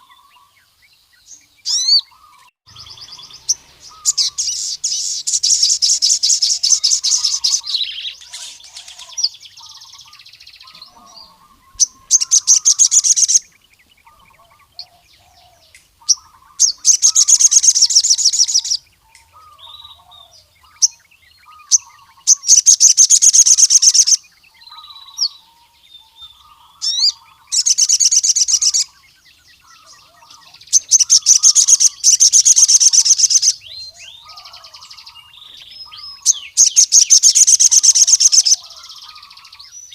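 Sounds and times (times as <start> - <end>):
bird rapid high trilling: 1.7 - 13.5, 16.0 - 18.8, 21.6 - 24.2, 26.4 - 29.0, 29.6 - 39.8.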